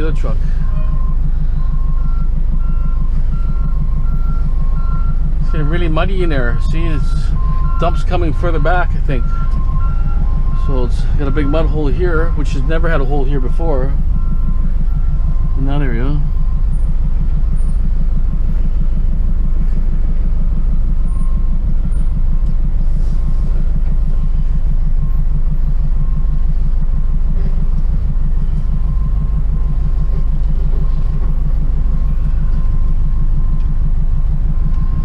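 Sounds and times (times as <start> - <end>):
truck engine running: 0.0 - 35.0.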